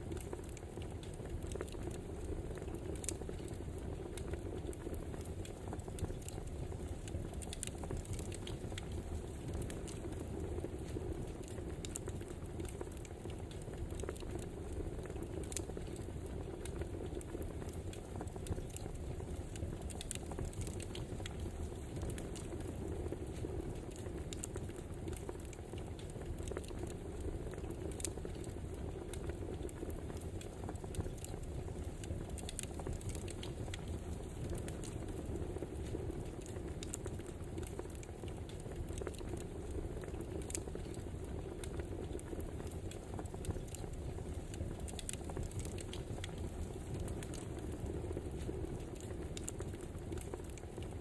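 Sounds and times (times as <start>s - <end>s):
wood fire crackling: 0.0s - 51.0s.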